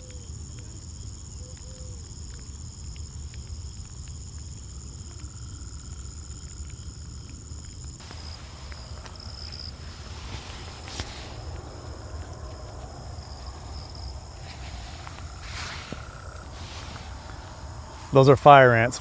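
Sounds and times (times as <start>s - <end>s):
insects trilling: 0.0s - 19.0s
brief rush of noise: 8.0s - 18.2s
low rumble: 8.0s - 19.0s.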